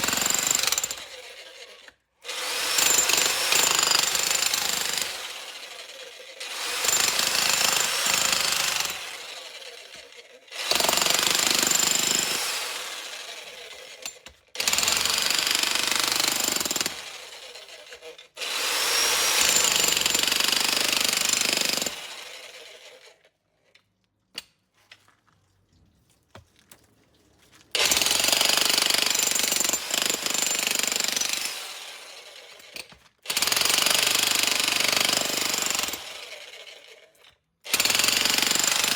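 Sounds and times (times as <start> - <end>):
demolition hammer on concrete: 0.0 - 1.1, 2.3 - 5.7, 6.5 - 9.4, 10.7 - 13.1, 13.7 - 17.2, 18.5 - 22.1, 27.8 - 31.8, 32.8 - 36.2, 37.7 - 38.9.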